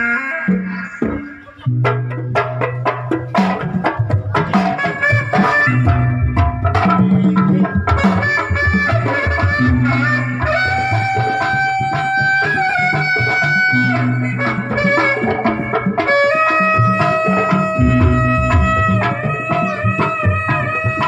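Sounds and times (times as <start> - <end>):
reed wind instrument melody: 0.0 - 21.0
hand drum strokes: 0.5 - 21.0.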